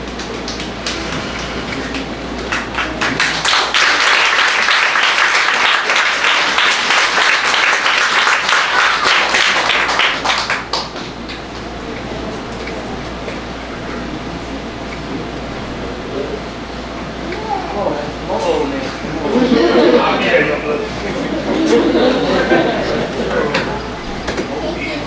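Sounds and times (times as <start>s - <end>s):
audience applauding: 0.1s - 13.0s.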